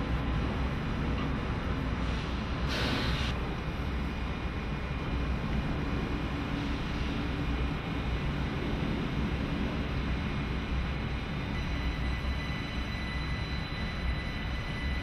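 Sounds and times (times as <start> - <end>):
electric train rumbling: 0.0 - 15.0
faint steady tones: 7.2 - 15.0.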